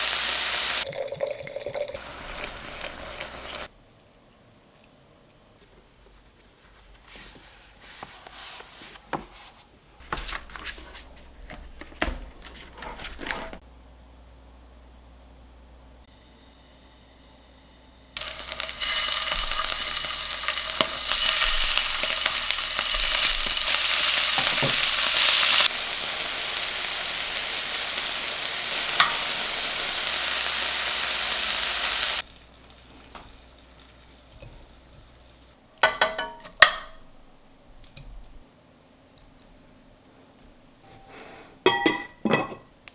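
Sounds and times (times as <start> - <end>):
food sizzling in a frying pan: 0.0 - 1.0, 1.8 - 3.7, 18.2 - 35.6.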